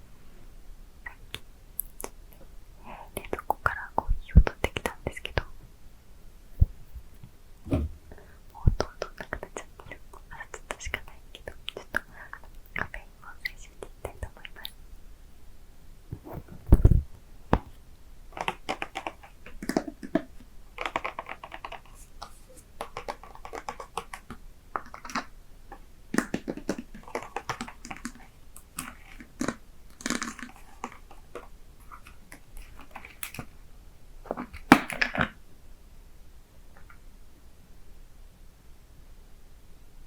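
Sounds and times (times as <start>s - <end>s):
low thump: 7.7s - 8.2s.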